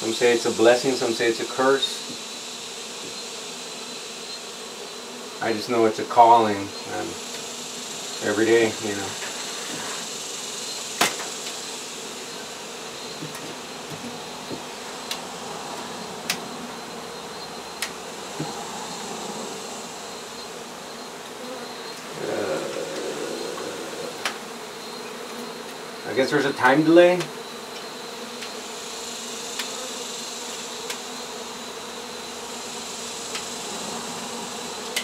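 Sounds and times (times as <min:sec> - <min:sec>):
honey bees buzzing: 0:00.0 - 0:35.0.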